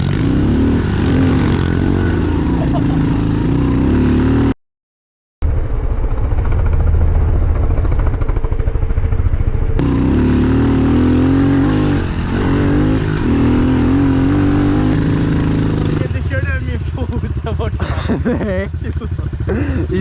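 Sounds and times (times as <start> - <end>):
pit bike engine revving: 0.0 - 4.6, 9.8 - 20.0.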